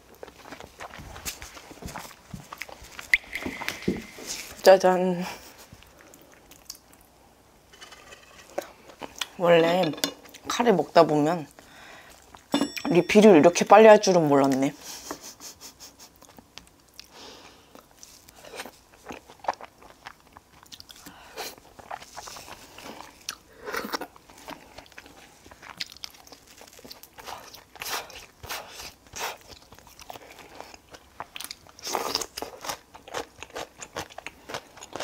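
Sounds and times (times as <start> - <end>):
person chewing with crunches: 0.0 - 4.7, 5.4 - 7.1, 15.8 - 35.0.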